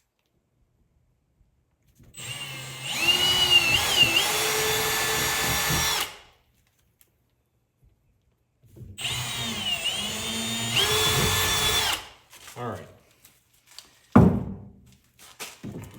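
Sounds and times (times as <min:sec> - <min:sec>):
power drill whining: 0:02.2 - 0:06.2, 0:09.0 - 0:12.2.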